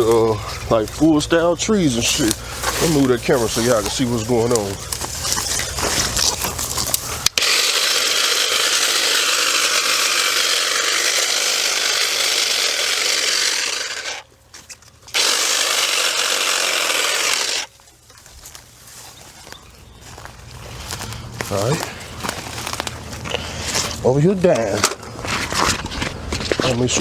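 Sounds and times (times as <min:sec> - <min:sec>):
electric cutting tool cutting brush: 0:00.0 - 0:17.8.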